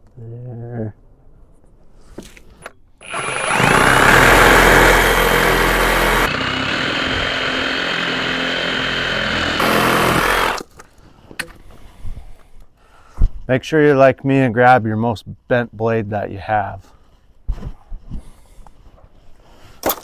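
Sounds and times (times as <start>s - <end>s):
reciprocating saw cutting plastic pipe: 3.0s - 10.7s.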